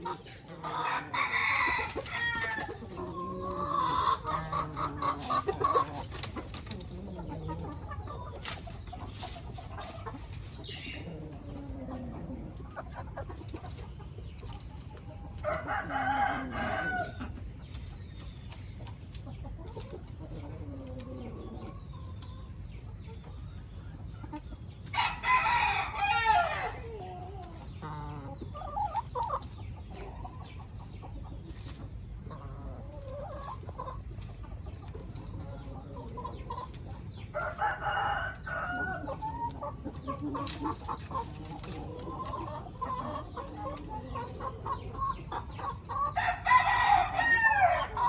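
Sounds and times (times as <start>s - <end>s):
roosters crowing: 0.0s - 17.6s, 24.8s - 29.6s, 36.6s - 48.0s
chickens clucking: 0.0s - 48.0s.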